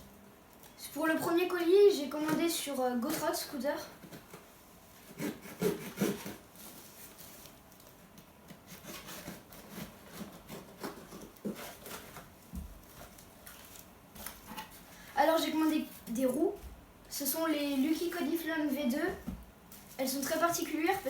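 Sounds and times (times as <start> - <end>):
cardboard packaging rustling: 6.0 - 16.7, 19.2 - 21.0.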